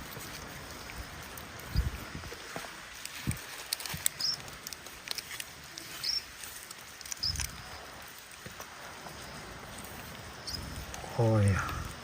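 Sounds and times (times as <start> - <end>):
small bird peeping: 4.1 - 4.4, 5.8 - 6.4, 7.1 - 7.8, 10.1 - 10.9.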